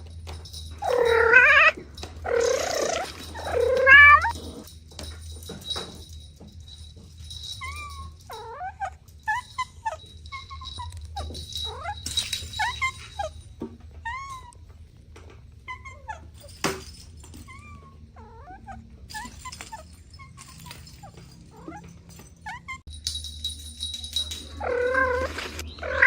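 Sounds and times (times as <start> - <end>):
kittens mewing: 0.8 - 4.7, 24.6 - 26.0.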